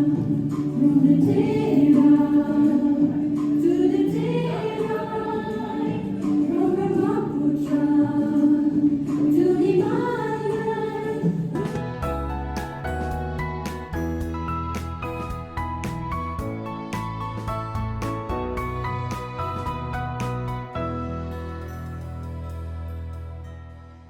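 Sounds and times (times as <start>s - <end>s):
choir singing slow hymn: 0.0s - 12.2s.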